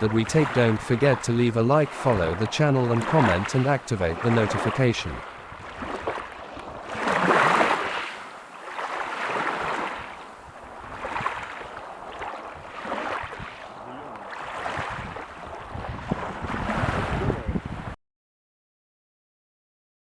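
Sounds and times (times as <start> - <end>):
ocean waves washing in: 0.0 - 18.0.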